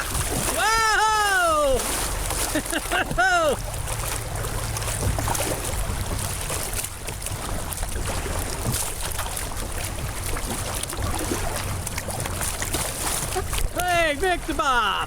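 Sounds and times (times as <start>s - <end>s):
floodwater rushing and splashing: 0.0s - 15.0s
low rumble: 3.6s - 7.2s.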